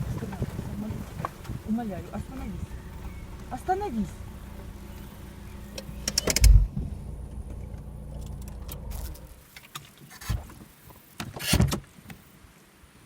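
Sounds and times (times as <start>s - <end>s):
car engine humming: 0.0s - 9.5s
sharp clicks: 5.7s - 6.7s.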